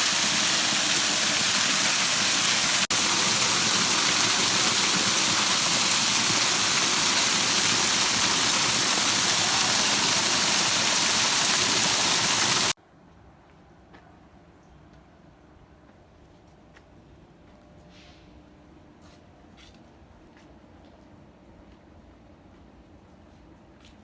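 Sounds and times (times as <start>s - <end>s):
waterfall rushing: 0.0s - 12.8s.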